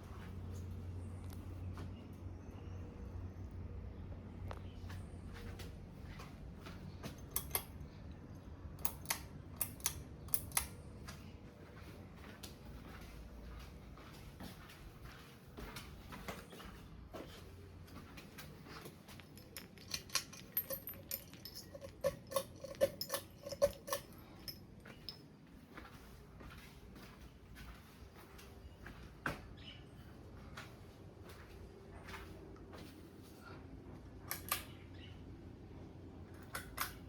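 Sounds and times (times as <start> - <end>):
metallic clicks and jingles: 7.0 - 8.1, 18.6 - 25.3.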